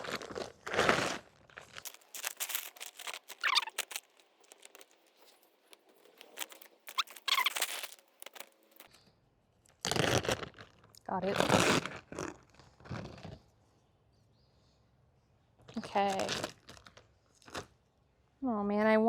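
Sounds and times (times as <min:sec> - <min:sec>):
plastic bag crinkling and tearing: 0:00.0 - 0:08.9, 0:15.8 - 0:17.6
short squeaks: 0:01.8 - 0:08.9.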